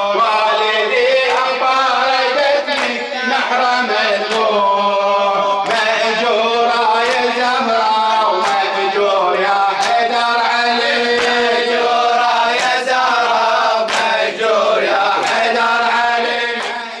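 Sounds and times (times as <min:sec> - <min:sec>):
men chanting: 0:00.0 - 0:17.0
chest-beating slaps: 0:02.7 - 0:03.0, 0:04.2 - 0:04.6, 0:05.6 - 0:06.0, 0:08.4 - 0:08.8, 0:09.8 - 0:10.2, 0:11.1 - 0:14.3.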